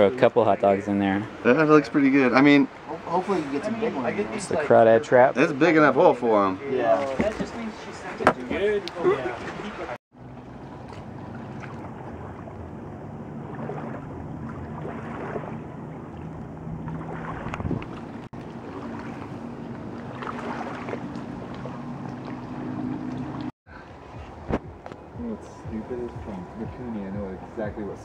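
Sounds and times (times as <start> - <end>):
motorboat engine drone: 10.1 - 28.0
wind buffeting microphone: 10.5 - 28.0.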